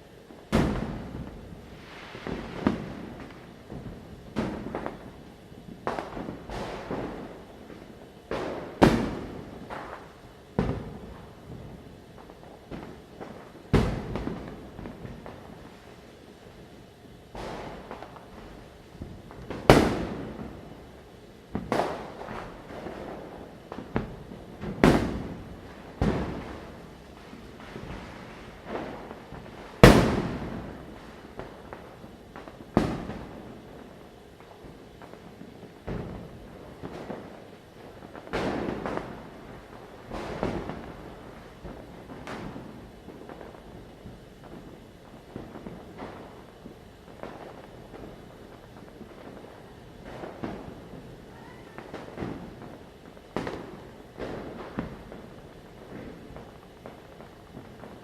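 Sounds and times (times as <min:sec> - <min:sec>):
firecrackers banging: 0:00.0 - 0:58.0
firecracker bangs with echo: 0:00.5 - 0:01.4, 0:19.0 - 0:20.6, 0:23.8 - 0:26.8, 0:27.7 - 0:31.4, 0:32.5 - 0:33.3.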